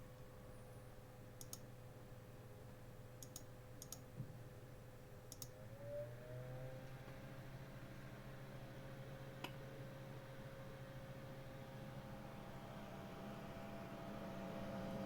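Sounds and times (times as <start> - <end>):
light sharp clicks: 1.4 - 1.7, 3.2 - 4.1, 5.3 - 5.6
electric fan humming: 4.9 - 15.0.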